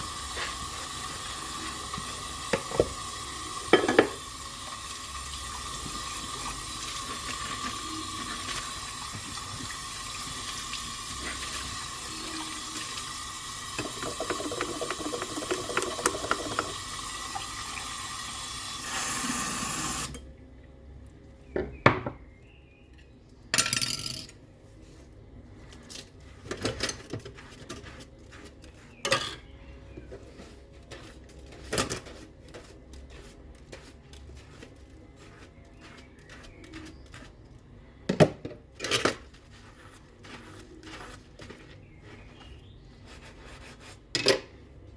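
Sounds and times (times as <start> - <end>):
tap running into sink: 2.0 - 3.0, 13.8 - 18.0.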